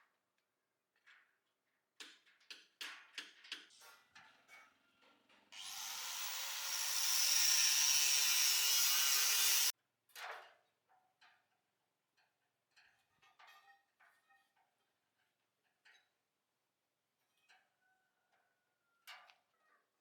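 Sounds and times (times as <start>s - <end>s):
workshop power tool running: 5.6s - 9.7s.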